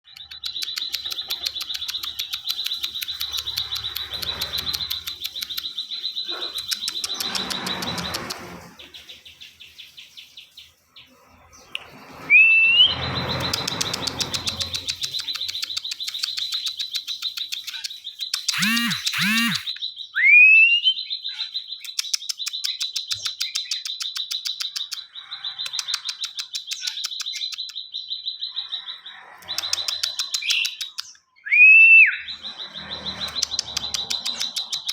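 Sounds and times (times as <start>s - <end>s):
songbird chirping rapidly: 0.0s - 34.9s
rising whistle: 12.3s - 12.9s, 31.5s - 32.2s.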